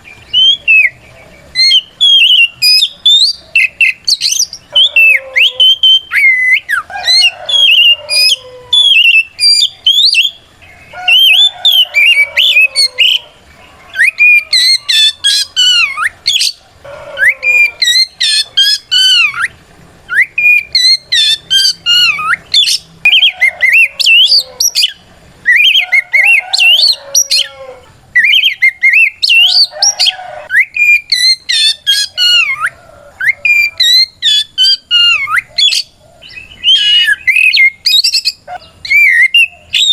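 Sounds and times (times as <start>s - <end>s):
bird singing whistled notes: 0.0s - 27.6s, 28.2s - 39.9s.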